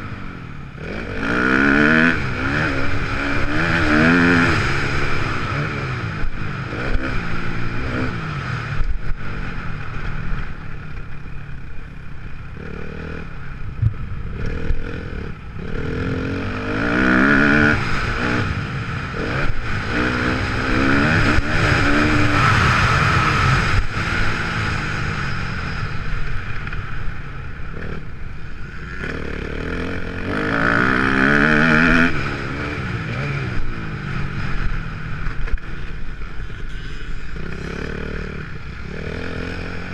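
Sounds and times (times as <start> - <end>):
motocross engine revving: 0.8 - 10.1, 14.2 - 25.3, 28.8 - 34.8.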